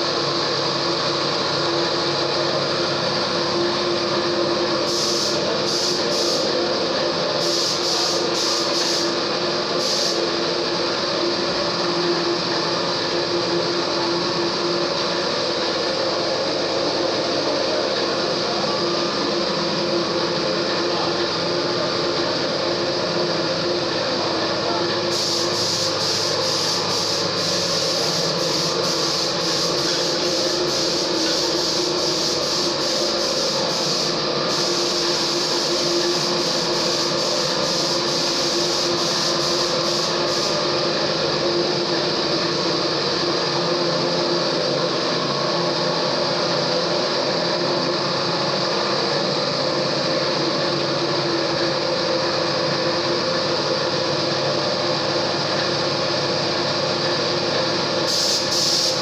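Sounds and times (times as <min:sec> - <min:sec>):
machine humming and whirring: 0:00.0 - 0:59.0.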